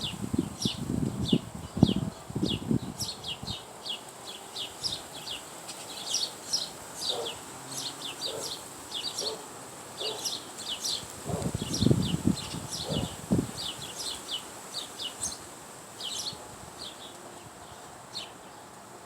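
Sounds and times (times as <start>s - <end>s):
small birds chirping: 0.0s - 18.7s.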